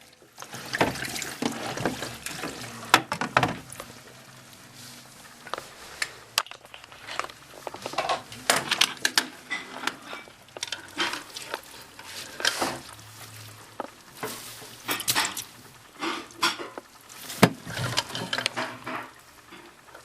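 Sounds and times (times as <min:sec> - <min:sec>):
laundry and water sloshing: 0:00.0 - 0:20.0.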